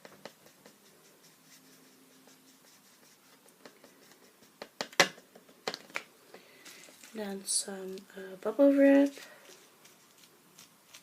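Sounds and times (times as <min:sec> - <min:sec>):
paintbrush scratching on paper: 0:00.0 - 0:04.7, 0:09.4 - 0:11.0.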